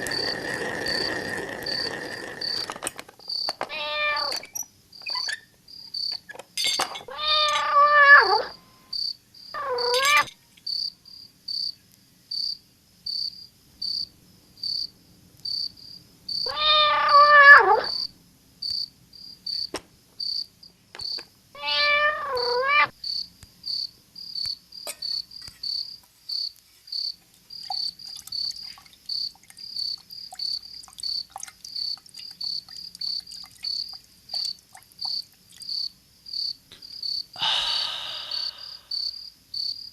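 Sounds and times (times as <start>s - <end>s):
cricket chirping: 0.0s - 39.9s
cat meowing: 3.7s - 4.4s, 7.0s - 8.6s, 9.6s - 10.3s, 16.5s - 18.1s, 21.6s - 22.9s.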